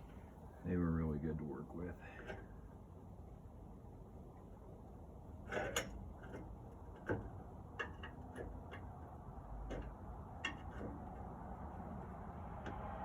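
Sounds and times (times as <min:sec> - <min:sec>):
light clicks and knocks of metal parts: 0:01.0 - 0:03.0, 0:05.3 - 0:12.9.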